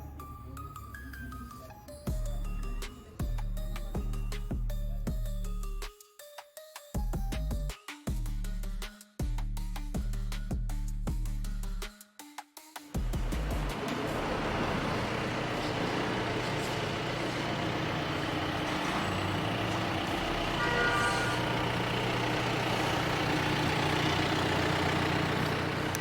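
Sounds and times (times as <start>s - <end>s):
motor vehicle running: 13.0s - 26.0s
short tone: 20.5s - 22.1s.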